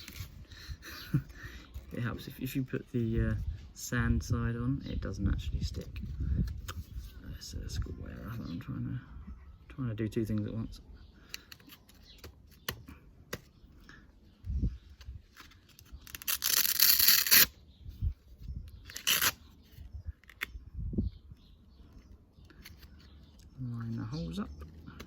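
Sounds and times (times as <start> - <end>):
hook-and-loop ripping: 15.8 - 17.6, 18.8 - 19.4.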